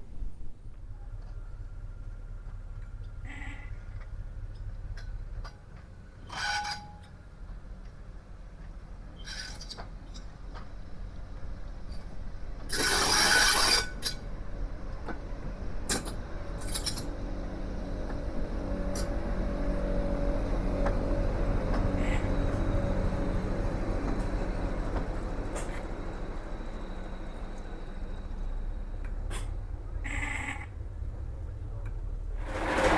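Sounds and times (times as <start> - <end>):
low train rumble and hum: 0.0 - 32.9
train clicks: 2.4 - 3.2, 3.8 - 17.3, 18.0 - 19.4, 20.7 - 29.8
loud train hiss: 12.7 - 14.2.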